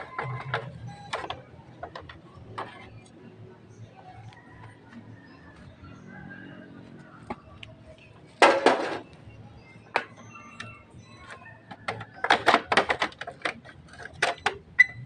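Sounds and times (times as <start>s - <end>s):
tools and parts clattering: 8.4s - 9.1s, 9.9s - 15.0s.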